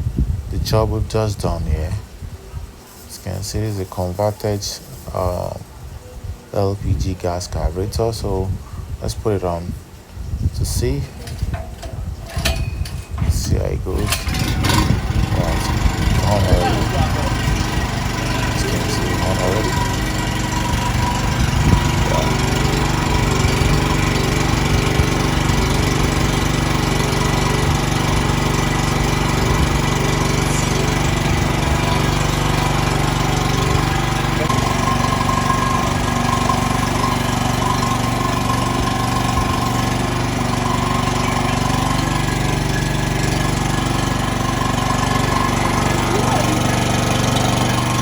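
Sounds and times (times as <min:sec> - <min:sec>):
generator engine running: 0:10.6 - 0:48.0.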